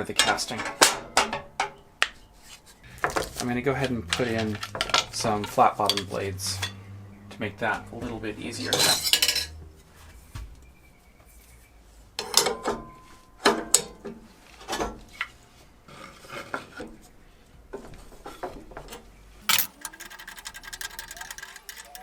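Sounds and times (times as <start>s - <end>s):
metal clinking and scraping: 19.4s - 22.0s.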